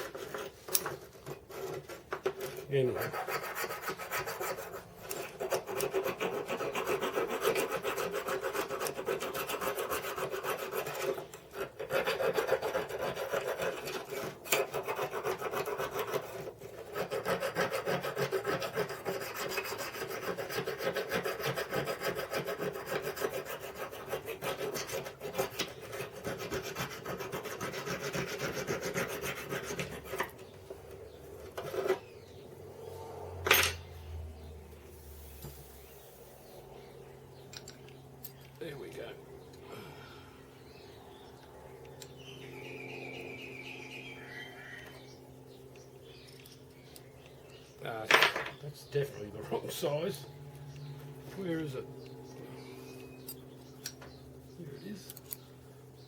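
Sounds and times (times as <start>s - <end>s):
metal being hand-filed: 0.0s - 32.4s.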